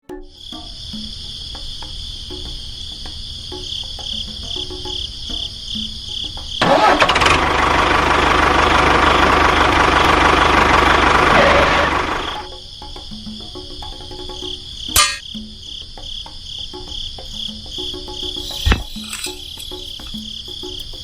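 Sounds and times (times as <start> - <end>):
crickets chirping: 0.0 - 7.0, 12.4 - 21.0
loud engine noise: 6.6 - 12.4.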